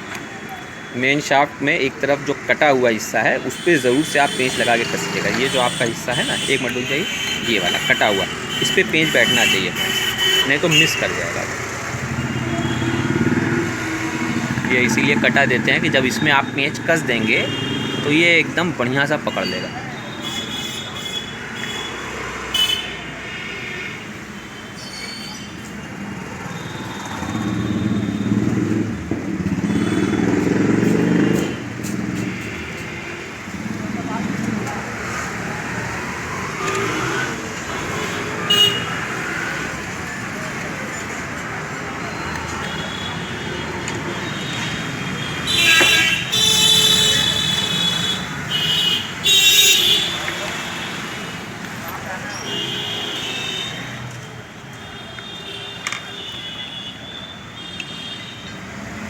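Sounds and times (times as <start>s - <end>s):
road traffic noise: 0.0s - 59.0s
vehicle horns honking: 3.4s - 13.5s, 16.2s - 18.4s, 19.3s - 24.8s, 29.6s - 33.6s, 37.7s - 39.4s, 42.1s - 51.5s, 52.3s - 54.0s, 54.8s - 58.8s
passing vehicle engine: 11.1s - 17.2s, 25.9s - 32.4s, 33.4s - 42.7s.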